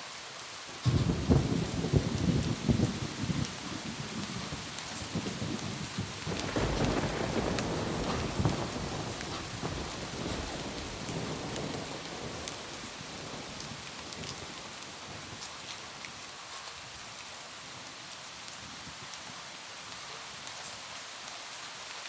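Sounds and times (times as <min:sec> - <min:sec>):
rain on a roof: 0:00.0 - 0:22.0
low thunder rumble: 0:00.9 - 0:15.4.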